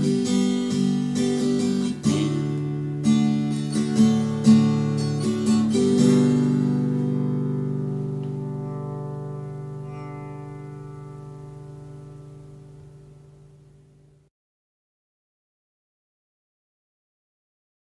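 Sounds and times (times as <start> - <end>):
acoustic guitar chords: 0.0 - 14.3.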